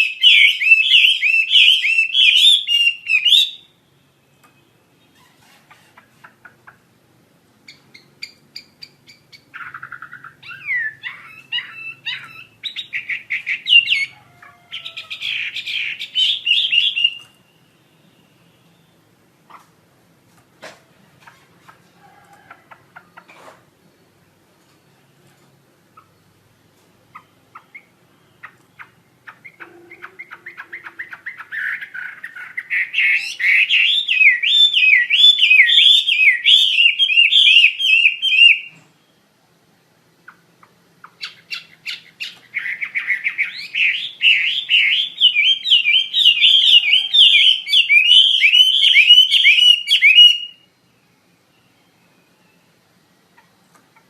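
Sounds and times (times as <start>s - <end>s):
songbird whistling song: 0.0s - 6.8s, 7.7s - 19.6s, 27.1s - 39.3s, 41.0s - 52.8s.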